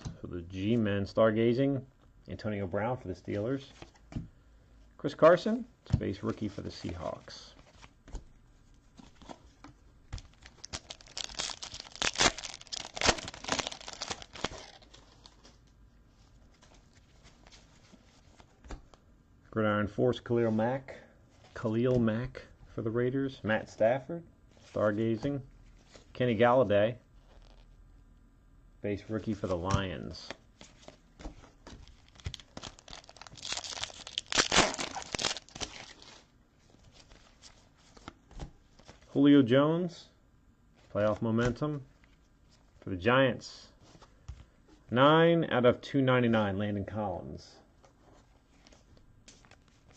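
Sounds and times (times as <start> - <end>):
plastic wrapper crackling: 10.1 - 15.6, 31.8 - 36.2.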